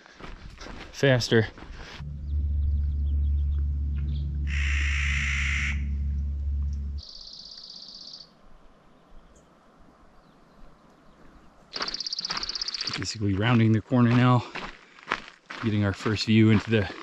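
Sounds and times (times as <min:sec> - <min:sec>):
steady low rumble: 0:01.4 - 0:07.0
high buzzy call: 0:02.0 - 0:07.0.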